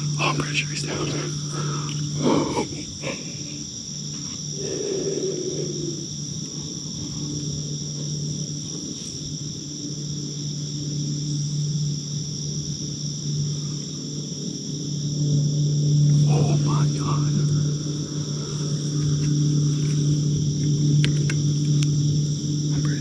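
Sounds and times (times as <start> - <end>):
breathy whisper: 0.0 - 7.4, 16.2 - 19.2
crickets and insects trilling: 0.0 - 23.0
low hum: 0.0 - 23.0.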